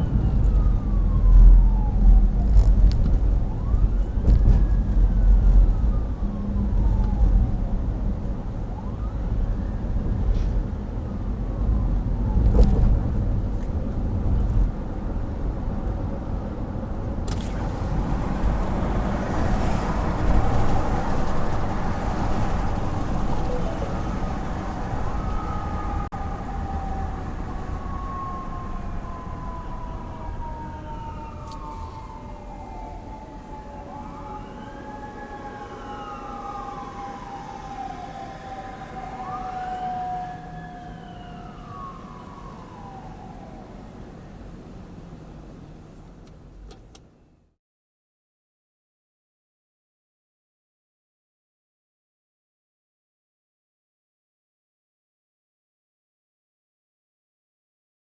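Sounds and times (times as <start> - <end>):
fire engine siren wailing: 0.0 - 13.0, 17.3 - 44.4
engine and road rumble: 0.0 - 47.6.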